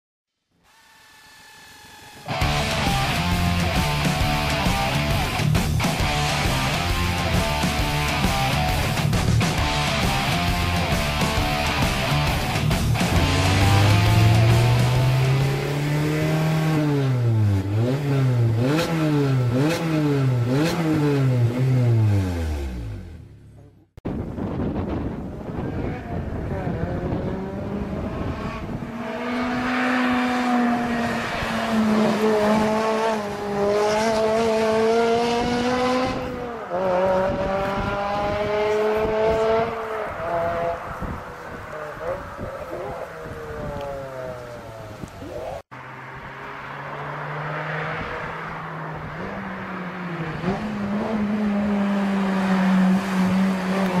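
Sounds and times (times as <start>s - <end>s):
car engine revving: 0.7s - 23.8s, 25.3s - 54.0s.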